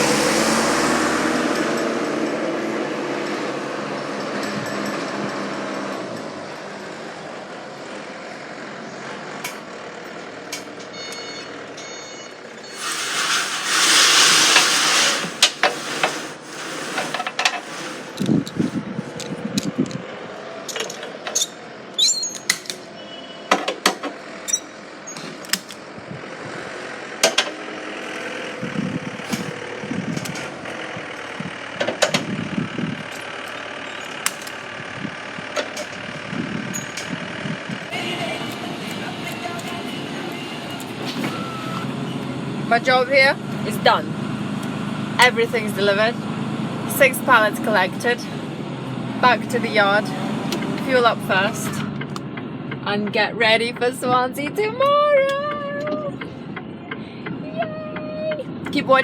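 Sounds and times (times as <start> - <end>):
lorry air hiss: 12.7 - 18.1.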